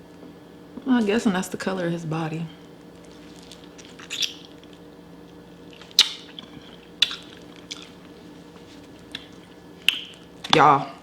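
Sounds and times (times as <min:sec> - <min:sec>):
wet squishy crab eating: 0:02.6 - 0:10.4
crab shell cracking: 0:02.9 - 0:04.9, 0:05.7 - 0:08.1.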